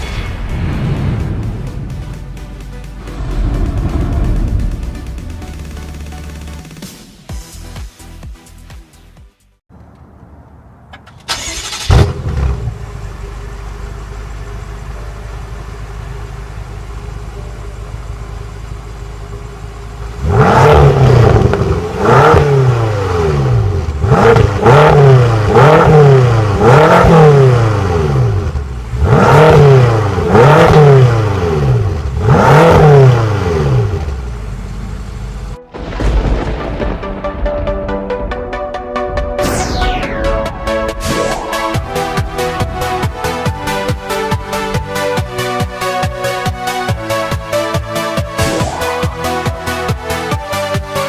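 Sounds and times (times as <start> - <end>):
car engine starting: 0.0 - 7.3, 9.9 - 51.0
engine revving: 1.4 - 6.9, 11.3 - 13.0, 20.2 - 34.8, 39.4 - 51.0
car engine idling: 1.4 - 7.0, 11.4 - 20.5, 33.8 - 35.7, 41.4 - 50.7.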